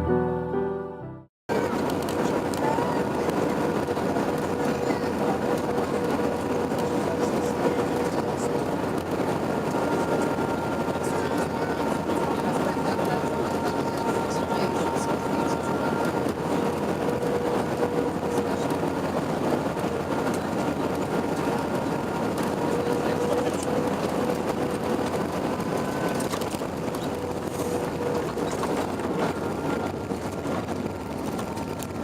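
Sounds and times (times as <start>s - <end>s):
aircraft cabin engine and airflow rush: 1.5s - 32.0s
steady humming tones: 1.5s - 32.0s.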